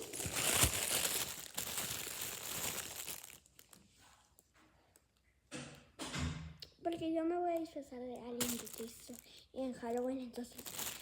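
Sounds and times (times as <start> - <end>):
packaging crinkling and tearing: 0.0 - 4.4, 8.4 - 11.0.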